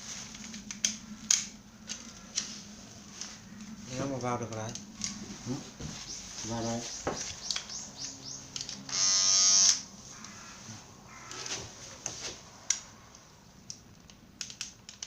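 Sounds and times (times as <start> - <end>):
faint motor hum: 0.0 - 14.8
sharp clicks: 6.9 - 10.4
electric hair clippers buzzing: 8.9 - 9.8.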